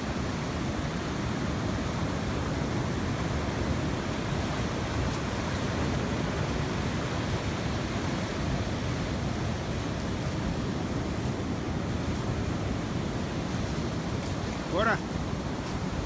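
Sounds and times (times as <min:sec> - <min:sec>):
sea surf rushing: 0:13.4 - 0:16.0.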